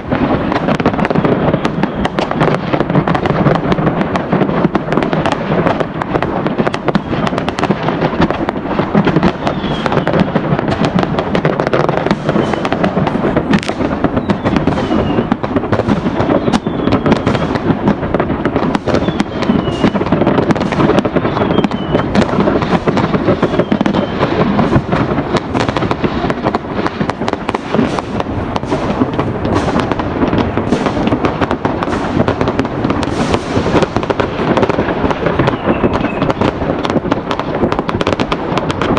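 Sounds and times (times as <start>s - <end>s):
firecrackers bangs and crackles: 0.0s - 38.9s
whistles falling in pitch: 9.4s - 10.1s, 12.3s - 12.8s, 14.2s - 15.3s, 16.2s - 17.5s, 18.9s - 20.0s, 21.3s - 22.1s, 23.4s - 24.2s, 35.4s - 36.4s.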